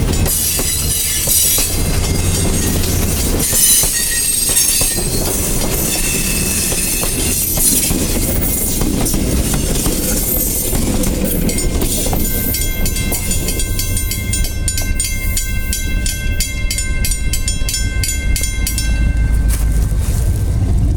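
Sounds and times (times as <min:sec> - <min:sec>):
wheel squeal: 0:00.0 - 0:15.8
train wheels rumbling on rails: 0:00.0 - 0:20.9
high ringing tones: 0:00.6 - 0:07.5, 0:10.0 - 0:20.6.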